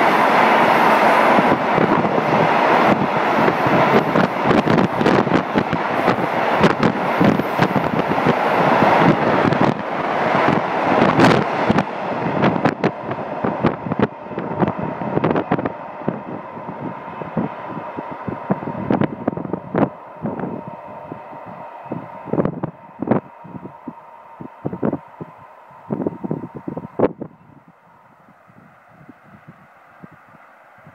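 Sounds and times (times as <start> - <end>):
wind buffeting microphone: 0.0 - 30.9
train wheels clunking over rail joints: 1.3 - 20.6.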